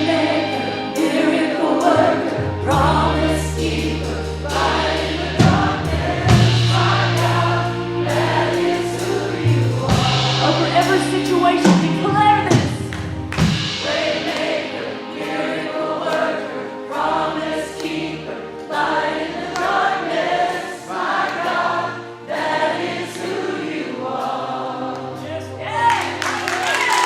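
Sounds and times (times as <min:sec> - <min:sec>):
group of voices singing: 0:00.0 - 0:12.2, 0:13.7 - 0:26.2
worship band playing: 0:00.0 - 0:27.0
steady beat: 0:04.0 - 0:18.1.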